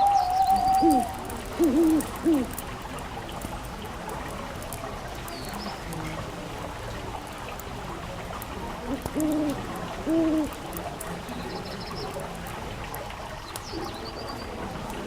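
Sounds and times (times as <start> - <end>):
owl hooting: 0.0 - 2.6.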